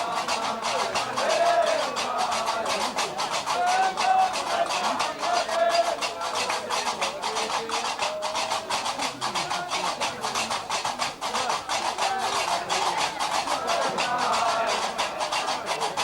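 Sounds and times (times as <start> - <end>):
voices singing held notes: 0.0 - 16.0.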